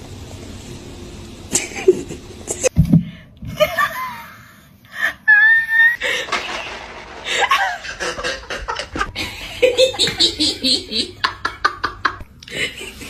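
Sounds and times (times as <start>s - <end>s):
people laughing hard: 7.2s - 13.0s.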